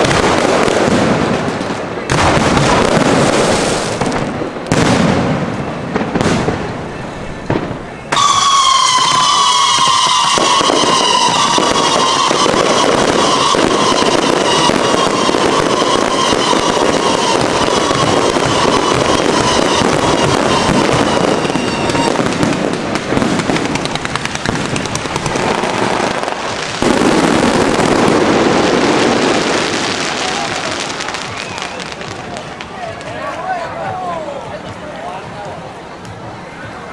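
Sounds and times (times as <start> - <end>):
fireworks crackling: 0.0 - 36.9
falling high whistle: 8.0 - 22.2, 30.3 - 32.2.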